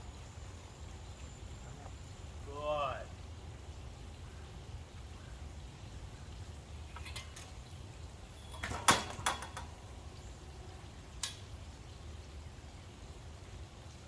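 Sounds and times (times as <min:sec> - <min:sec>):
low steady background noise: 0:00.0 - 0:14.0
sharp knocks and clatters: 0:08.6 - 0:09.8.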